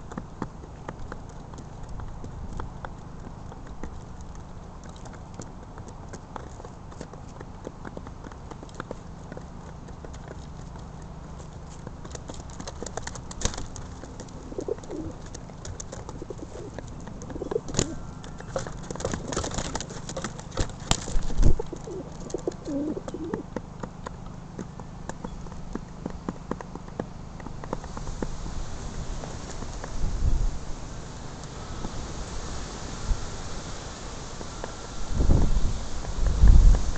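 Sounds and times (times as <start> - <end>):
pigeons cooing: 13.9 - 23.6.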